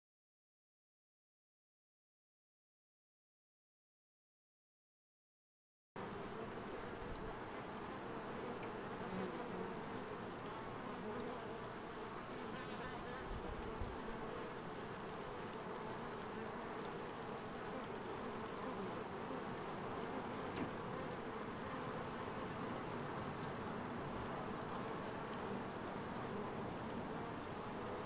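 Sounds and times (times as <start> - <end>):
honeybees buzzing: 6.0 - 28.0.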